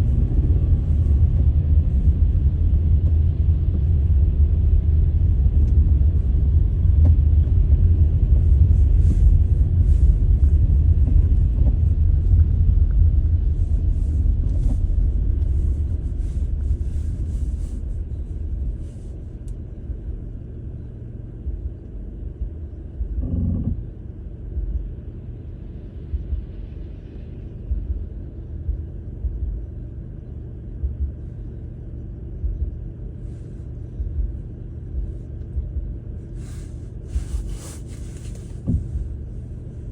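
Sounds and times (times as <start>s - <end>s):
wind buffeting microphone: 0.0s - 20.5s.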